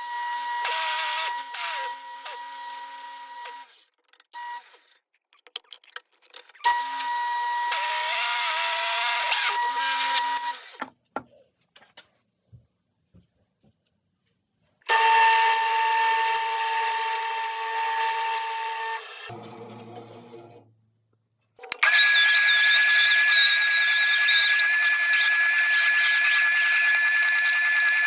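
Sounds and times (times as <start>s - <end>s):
small power tool whining: 0.0s - 3.8s, 6.6s - 10.8s, 14.9s - 19.4s, 21.7s - 28.0s.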